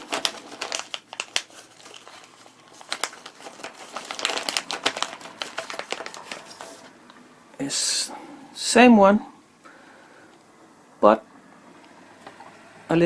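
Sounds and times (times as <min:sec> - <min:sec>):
handling noise crinkling: 0:00.0 - 0:07.1.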